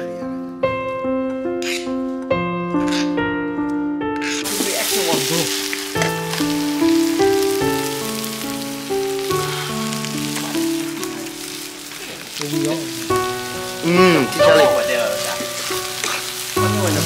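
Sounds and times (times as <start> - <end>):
background music: 0.0 - 17.0
food sizzling in a pan: 4.2 - 17.0.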